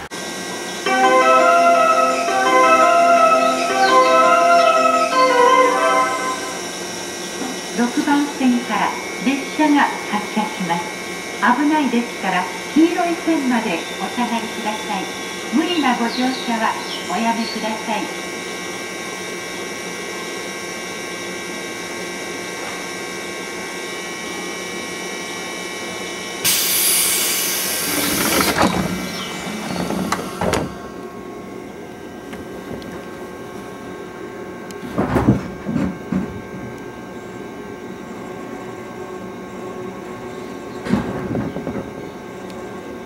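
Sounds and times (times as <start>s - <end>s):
train equipment humming: 0.0s - 43.0s
compressed air hiss: 26.4s - 28.3s
train doors closing thumps: 26.5s - 31.0s, 34.8s - 36.7s, 40.8s - 42.2s.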